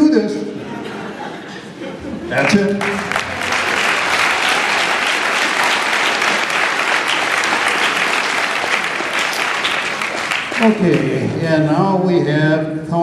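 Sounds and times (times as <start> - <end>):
audience applauding: 1.6 - 11.6.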